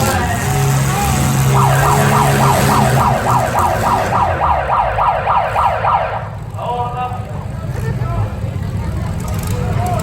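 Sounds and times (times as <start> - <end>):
emergency siren yelping: 1.4 - 6.5.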